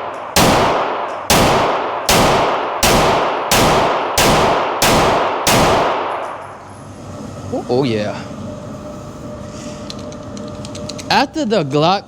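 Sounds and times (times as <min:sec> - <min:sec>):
handgun shots echoing: 0:00.0 - 0:06.4.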